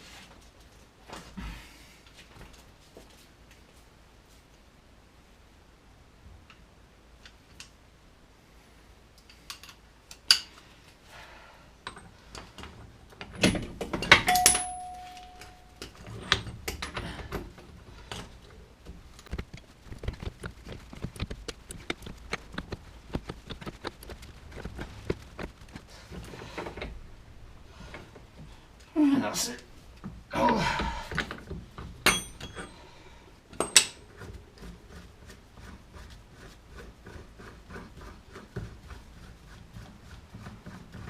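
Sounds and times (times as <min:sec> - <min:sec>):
metal tools clinking: 0:13.3 - 0:17.0, 0:32.0 - 0:32.8
struck metal ringing: 0:14.2 - 0:15.8.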